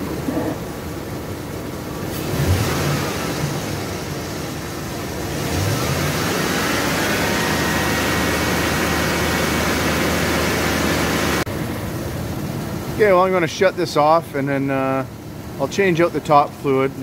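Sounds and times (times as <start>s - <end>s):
engine idling and revving: 0.0s - 13.0s.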